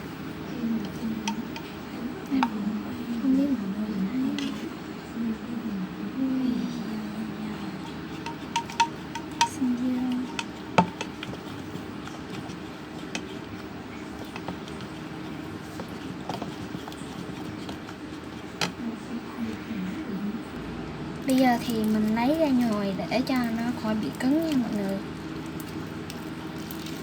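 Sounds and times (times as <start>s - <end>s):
utensil knocking on container: 7.8s - 17.8s.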